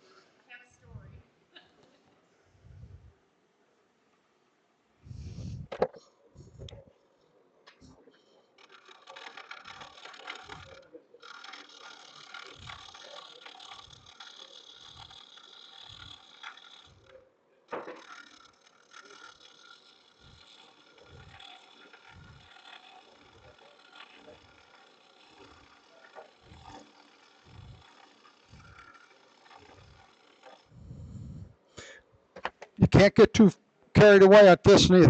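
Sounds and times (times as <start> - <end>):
cutter scraping wood on lathe: 7.7 - 32.0.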